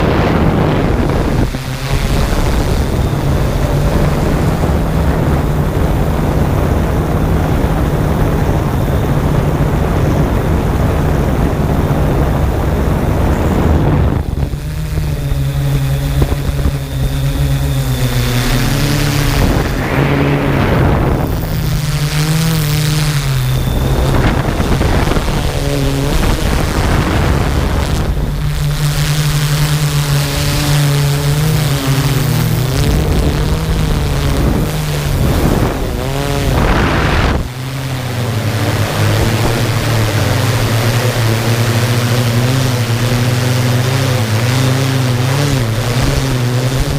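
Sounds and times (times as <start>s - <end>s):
drone motors whining: 0.0s - 46.9s
rushing noise: 11.5s - 41.1s.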